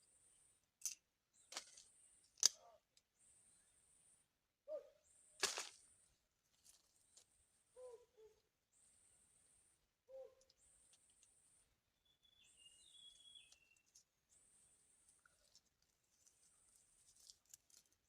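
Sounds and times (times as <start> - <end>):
low downward bird calls: 7.7 - 11.2, 12.0 - 14.4.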